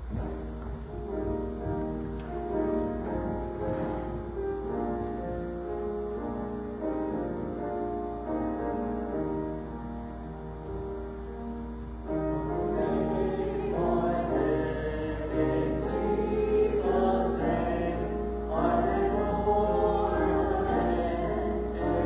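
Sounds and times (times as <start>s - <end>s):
keyboard playing hymn chords: 0.0s - 22.0s.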